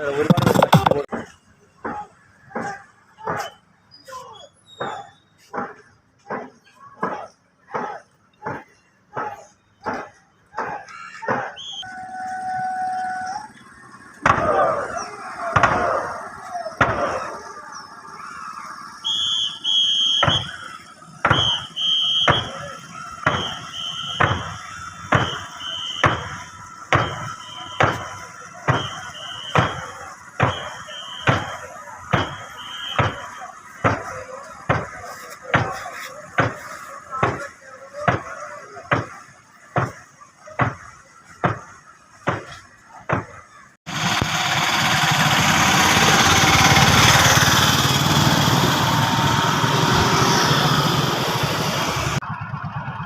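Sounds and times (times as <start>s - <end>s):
boat crew paddle strokes: 0.0s - 43.7s
shrill whistle: 3.4s - 5.4s, 10.9s - 13.6s, 17.4s - 34.0s.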